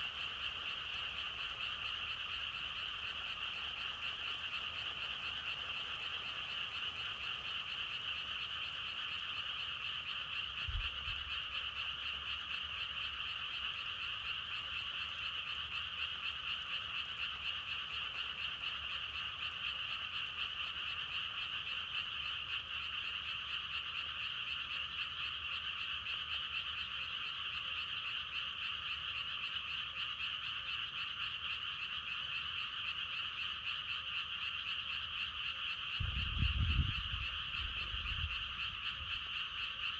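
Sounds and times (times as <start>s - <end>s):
chorus of frogs croaking: 0.0s - 39.9s.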